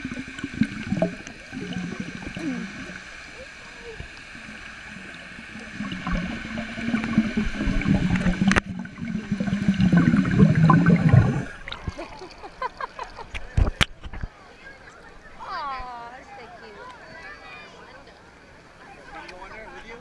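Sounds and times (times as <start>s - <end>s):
rushing splashing water: 0.0s - 12.5s.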